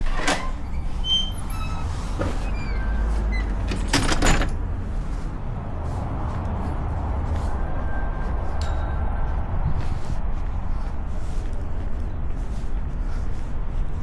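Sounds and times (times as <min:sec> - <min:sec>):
short high squeaks: 0:00.0 - 0:03.8
low rumble of traffic: 0:00.0 - 0:14.0.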